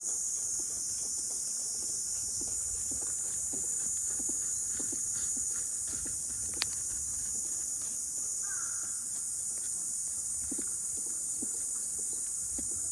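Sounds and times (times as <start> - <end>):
cicadas droning: 0.0 - 12.9.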